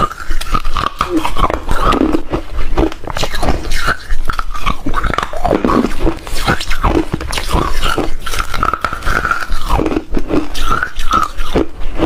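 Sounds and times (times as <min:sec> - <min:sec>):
crunching ice between teeth: 0:00.0 - 0:11.8
wet mouth sounds: 0:00.0 - 0:12.0.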